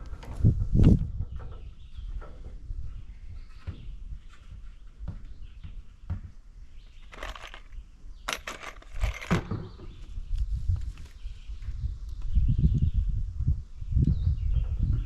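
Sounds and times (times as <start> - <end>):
rattling clattering building work: 0.0 - 10.0.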